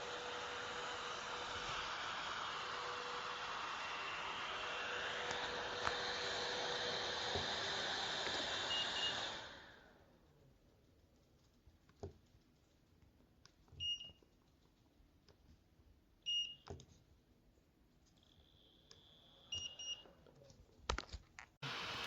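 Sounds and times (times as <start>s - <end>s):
fans rushing air: 0.0s - 9.9s, 21.6s - 22.0s.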